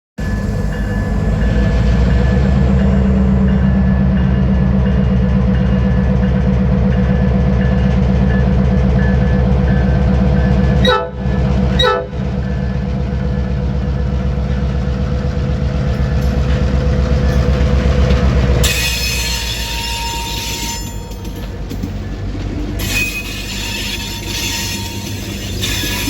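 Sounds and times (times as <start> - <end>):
train rumbling by: 0.2 - 26.0
steel wheels squealing on rails: 15.3 - 26.0.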